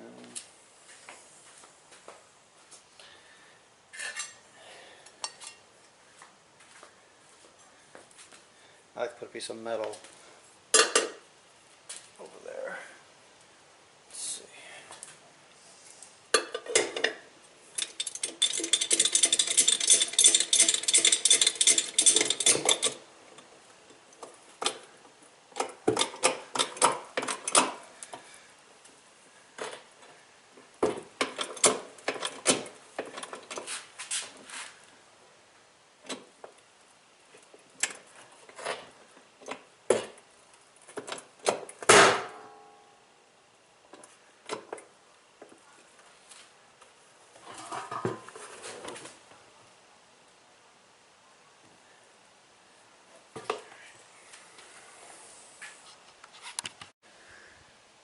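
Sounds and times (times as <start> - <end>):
ringing metallic rattle: 17.7 - 23.0
loud pop: 41.9 - 42.5.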